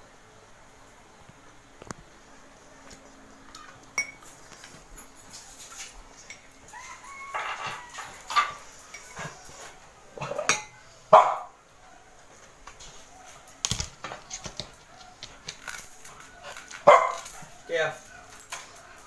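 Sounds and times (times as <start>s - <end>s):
dog barking: 11.1s - 12.0s, 16.6s - 18.3s.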